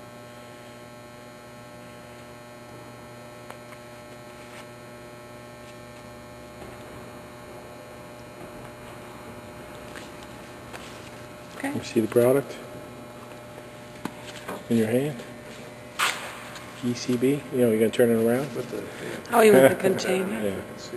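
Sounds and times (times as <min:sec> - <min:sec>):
steady electrical hum: 0:00.0 - 0:20.9.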